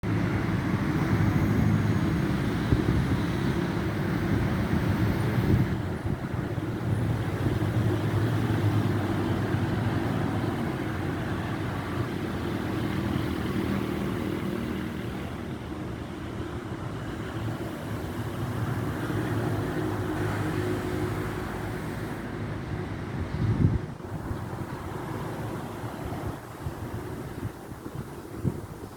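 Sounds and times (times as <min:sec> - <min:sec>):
road noise: 0:00.0 - 0:28.9
vehicle engine hum: 0:00.0 - 0:28.9.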